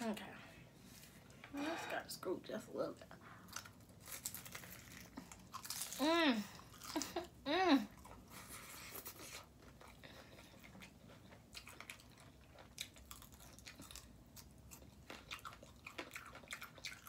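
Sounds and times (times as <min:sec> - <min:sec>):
close-up chewing with mouth clicks: 0:07.9 - 0:17.0.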